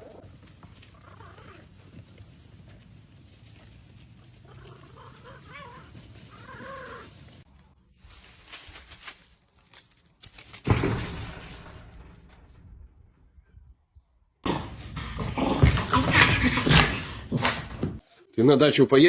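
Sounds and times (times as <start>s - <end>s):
sudden loud thump: 10.6s - 12.6s.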